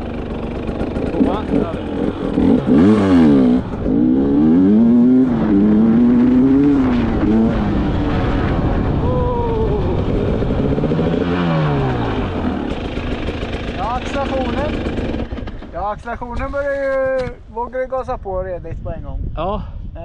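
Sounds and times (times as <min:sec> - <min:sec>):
motorcycle engine revving: 0:00.0 - 0:15.8.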